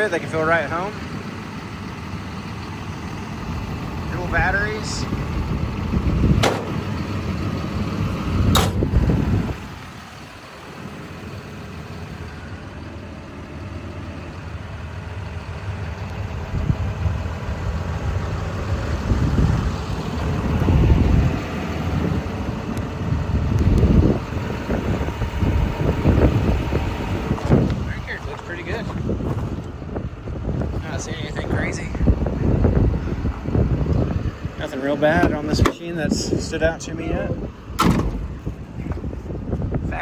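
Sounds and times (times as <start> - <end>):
excavator diesel engine idling: 0.0 - 40.0
dull low thumps: 5.0 - 10.0, 23.2 - 34.5, 37.3 - 40.0
sharp knocks: 6.4 - 7.0, 8.5 - 9.0.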